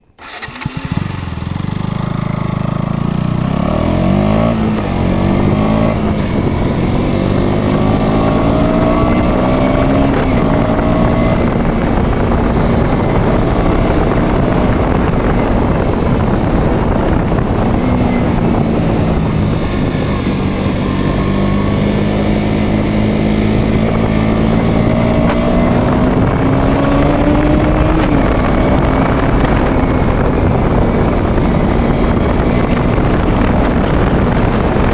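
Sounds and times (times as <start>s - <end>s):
motorcycle engine revving: 0.2s - 34.9s
wind on microphone: 0.3s - 34.9s.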